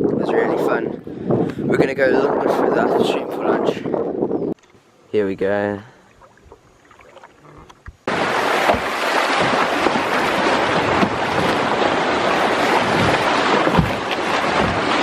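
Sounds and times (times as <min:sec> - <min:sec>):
low thumps: 0:08.0 - 0:15.0
white water rushing: 0:08.1 - 0:15.0.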